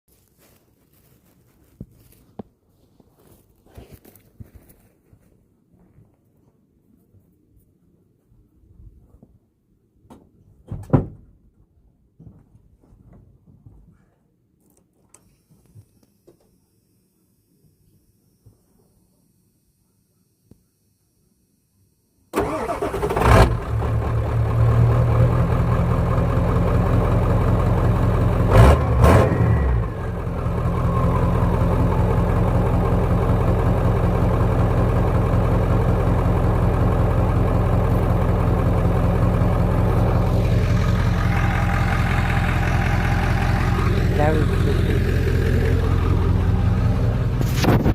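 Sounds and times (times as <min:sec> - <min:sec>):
diesel engine starting and idling: 0:22.4 - 0:47.9.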